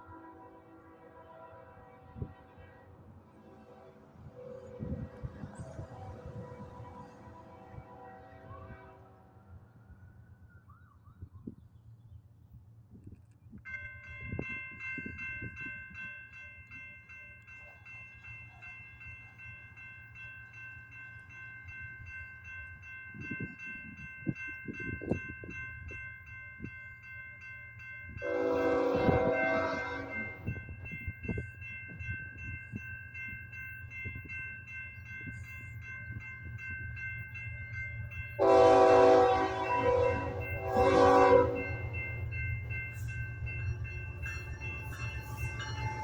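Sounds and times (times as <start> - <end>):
freight train rumbling: 0.0 - 19.8, 28.0 - 46.0
crossing bell ringing: 13.7 - 46.0
locomotive horn blast: 28.2 - 30.4, 38.4 - 41.8.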